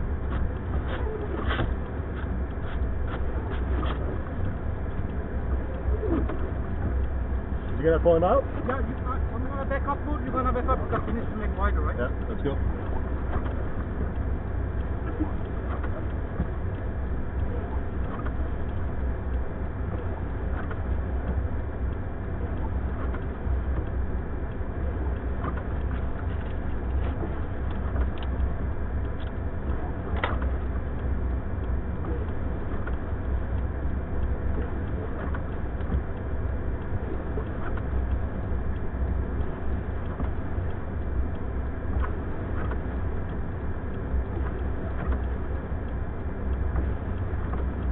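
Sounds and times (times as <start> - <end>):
car engine rumbling: 0.0 - 47.9
faint clicks: 12.8 - 47.9.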